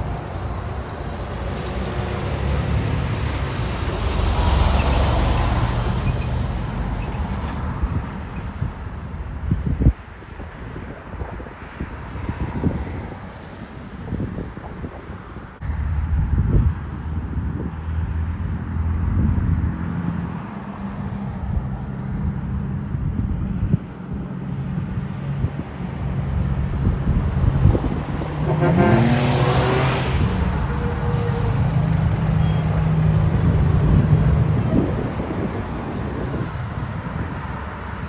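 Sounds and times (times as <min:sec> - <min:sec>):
diesel truck engines running: 0:00.0 - 0:09.4, 0:26.0 - 0:38.0
vehicle passing close: 0:27.2 - 0:37.3.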